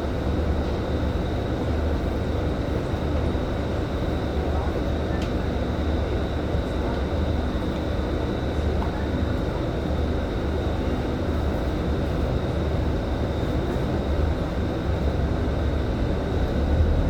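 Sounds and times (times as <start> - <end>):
bus engine and road rumble: 13.6 - 17.0.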